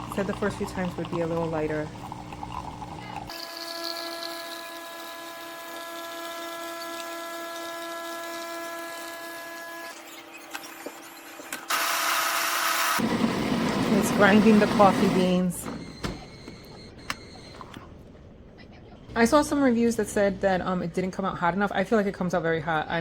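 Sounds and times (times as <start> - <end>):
coffee grinder motor hum: 0.0 - 9.9, 11.7 - 15.3.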